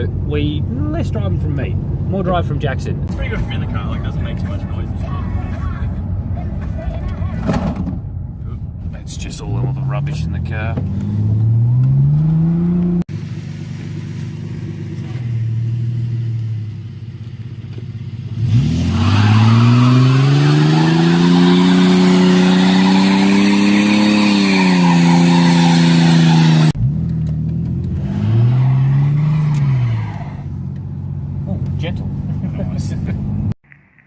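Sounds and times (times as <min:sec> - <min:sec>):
car engine revving: 0:03.1 - 0:33.5
tyres squealing: 0:18.8 - 0:26.8, 0:28.1 - 0:30.5.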